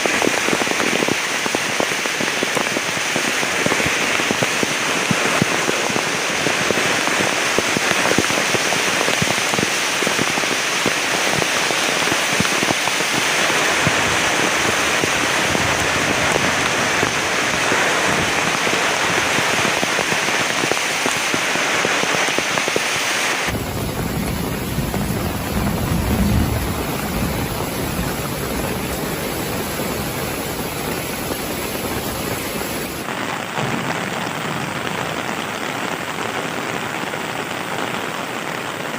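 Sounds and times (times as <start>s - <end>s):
heavy rain falling: 0.0s - 38.9s
dull rushing noise: 23.4s - 34.8s.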